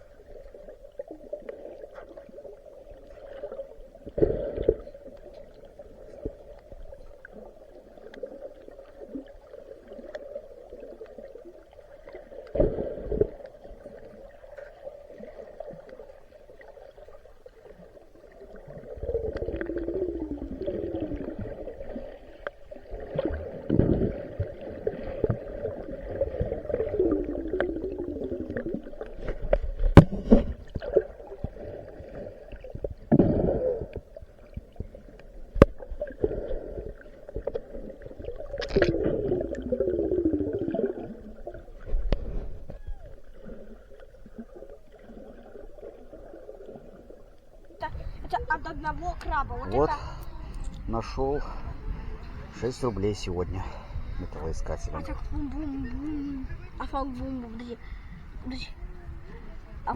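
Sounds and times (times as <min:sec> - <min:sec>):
underwater gurgling and rumbling: 0:00.0 - 0:59.9
steady low hum: 0:47.8 - 0:59.9.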